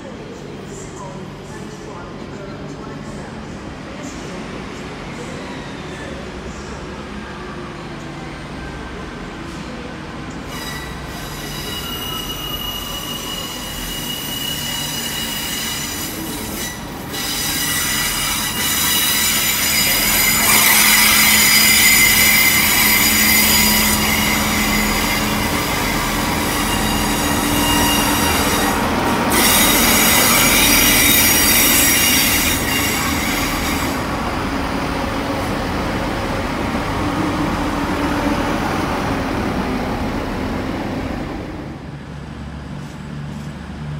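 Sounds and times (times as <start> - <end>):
train rumble: 0.0 - 43.9
train wheels squealing on rails: 5.0 - 7.9, 10.3 - 34.4.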